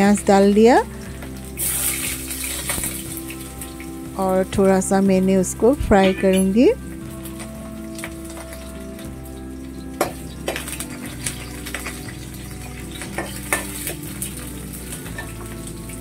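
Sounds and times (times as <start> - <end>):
onions sizzling in oil: 0.0 - 16.0
spoon knocking and scraping pan: 13.0 - 14.0.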